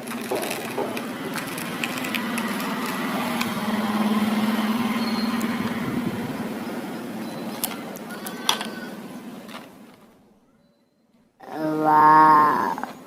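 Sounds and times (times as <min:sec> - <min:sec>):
toy electric motor whirring: 0:00.1 - 0:04.1.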